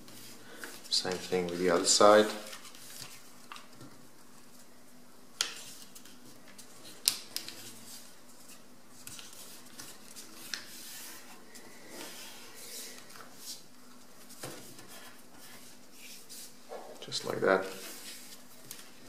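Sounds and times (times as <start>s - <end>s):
paper rustling and sliding: 5.5s - 13.6s, 17.3s - 19.0s.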